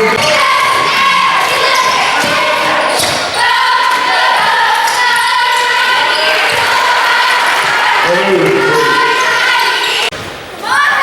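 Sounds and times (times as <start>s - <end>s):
basketball bouncing on floor: 0.0s - 3.3s
voices: 0.0s - 11.0s.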